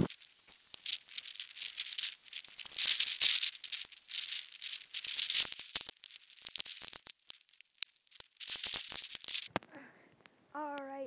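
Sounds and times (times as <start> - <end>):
small clicks: 0.0 - 10.9.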